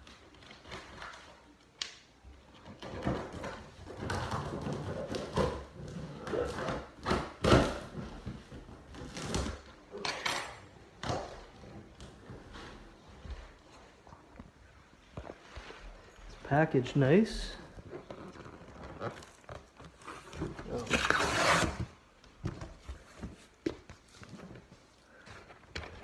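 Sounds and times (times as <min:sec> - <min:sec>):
cardboard box scraping and rustling: 0:18.0 - 0:22.0.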